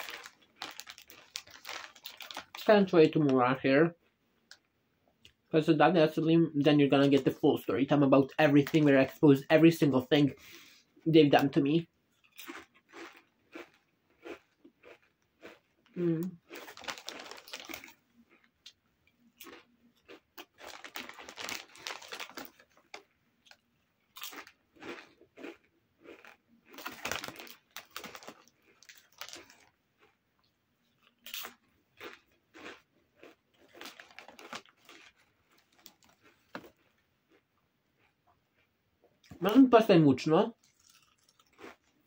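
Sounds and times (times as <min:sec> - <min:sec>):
tortilla chips being chewed: 0:00.0 - 0:02.6, 0:12.2 - 0:39.6, 0:40.6 - 0:42.0.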